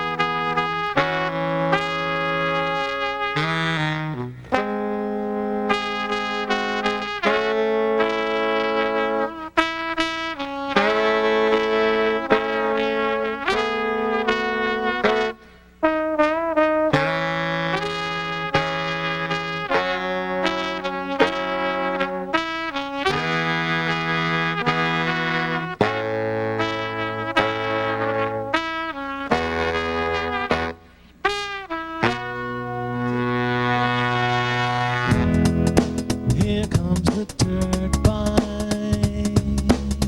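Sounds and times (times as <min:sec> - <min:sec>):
sustained horn chords: 0:00.0 - 0:39.6
sharp drum beats: 0:35.1 - 0:40.0.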